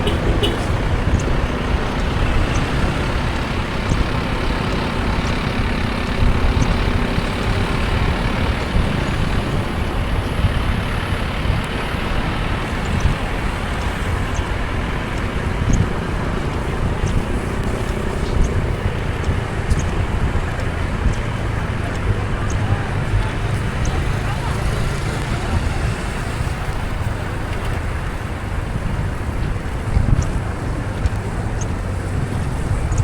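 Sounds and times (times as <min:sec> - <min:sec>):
car driving on wet road: 0:00.0 - 0:33.0
faint short ticks: 0:19.2 - 0:20.0.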